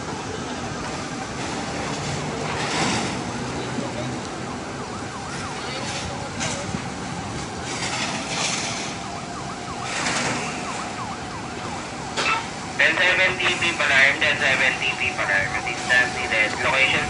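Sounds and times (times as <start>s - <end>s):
siren yelping: 4.2s - 6.3s, 8.3s - 17.0s.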